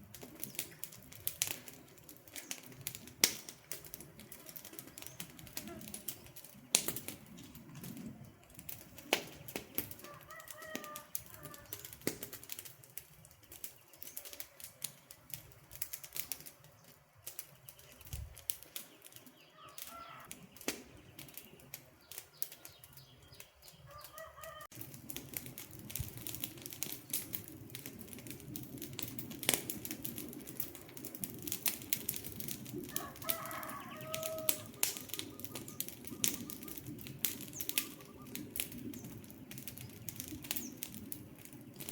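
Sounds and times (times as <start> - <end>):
campfire crackling and popping: 0.0 - 41.9
bird calls: 16.7 - 24.7, 33.0 - 41.9.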